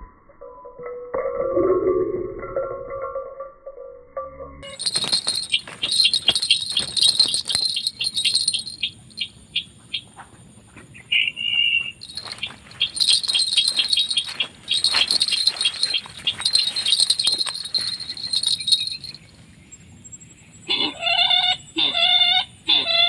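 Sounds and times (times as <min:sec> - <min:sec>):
bird chirping and ticking: 0:04.6 - 0:10.2, 0:11.0 - 0:19.6.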